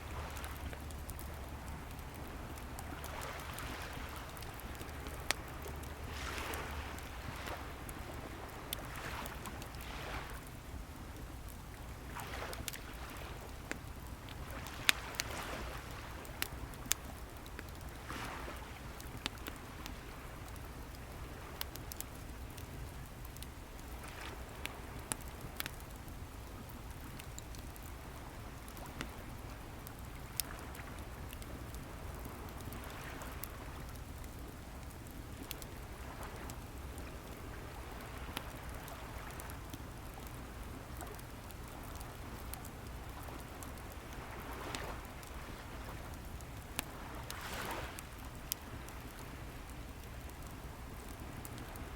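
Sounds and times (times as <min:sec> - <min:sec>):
waves washing onto shore: 0:00.0 - 0:11.4, 0:12.0 - 0:22.8, 0:41.0 - 0:49.8
wood fire crackling: 0:00.0 - 0:51.9.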